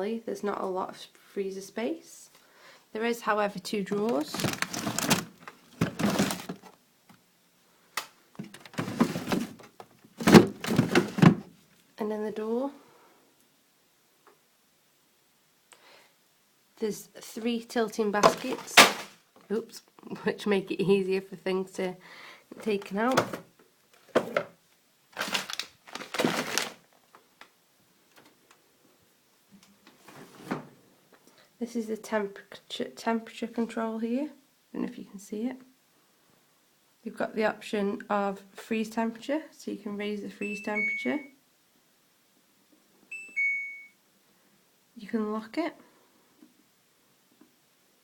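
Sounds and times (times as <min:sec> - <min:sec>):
plastic fridge baskets clattering: 0:03.9 - 0:06.7, 0:08.4 - 0:11.5, 0:18.2 - 0:19.2, 0:25.2 - 0:26.8
plastic drawers sliding and rattling: 0:04.0 - 0:06.7, 0:08.4 - 0:11.5, 0:18.2 - 0:19.2, 0:23.0 - 0:24.5, 0:25.2 - 0:26.8.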